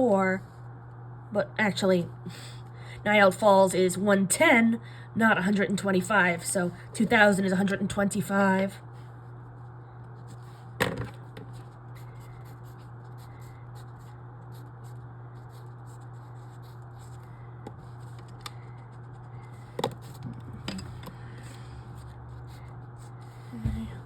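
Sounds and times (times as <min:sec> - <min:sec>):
steady low hum: 0:00.0 - 0:24.0
scratching of writing: 0:11.4 - 0:20.3.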